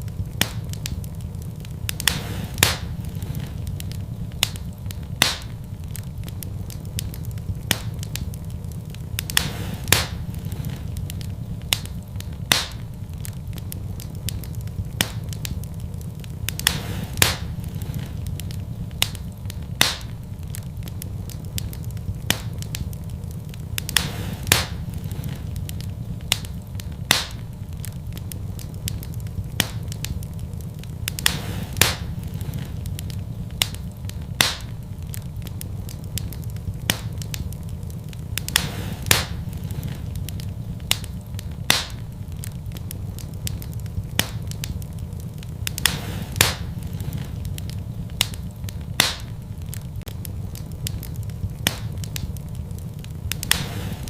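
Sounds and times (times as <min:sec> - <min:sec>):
fire crackles and pops: 0:00.0 - 0:54.0
wood fire burning: 0:00.0 - 0:54.0.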